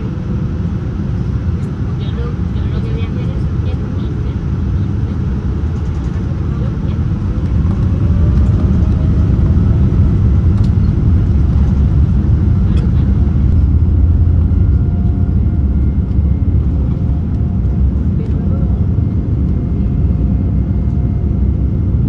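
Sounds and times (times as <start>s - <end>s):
aircraft engines rumbling in cabin: 0.0s - 22.0s
faint rising whine: 5.3s - 21.6s.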